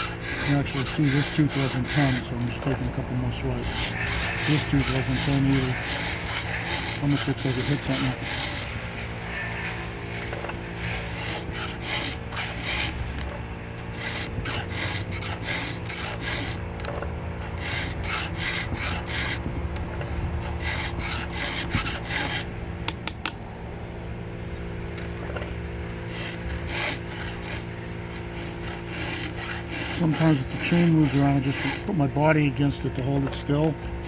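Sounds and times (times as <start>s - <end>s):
file rasping on chainsaw chain: 0.0s - 8.7s, 10.2s - 19.4s, 20.4s - 23.4s, 26.1s - 31.9s
sharp clicks: 22.9s - 23.4s.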